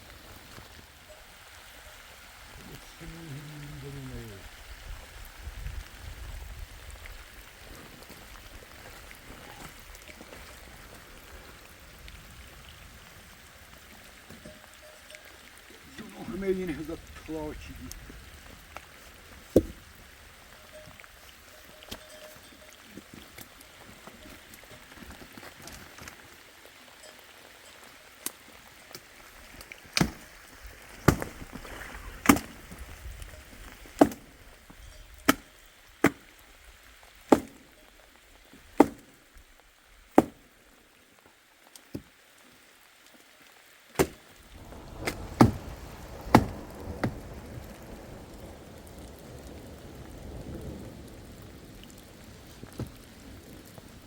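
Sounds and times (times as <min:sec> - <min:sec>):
rain hiss: 0:00.0 - 0:54.0
sharp chopping strikes: 0:34.0 - 0:34.2, 0:37.3 - 0:37.6, 0:38.8 - 0:39.1, 0:40.2 - 0:40.4, 0:44.0 - 0:44.2, 0:46.3 - 0:47.1.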